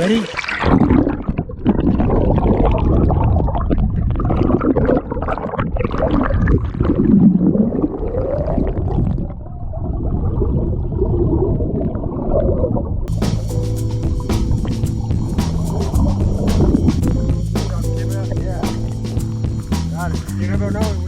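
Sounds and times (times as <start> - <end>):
muffled river water gurgling: 0.0 - 19.6
wavering low sweeps: 13.1 - 20.4.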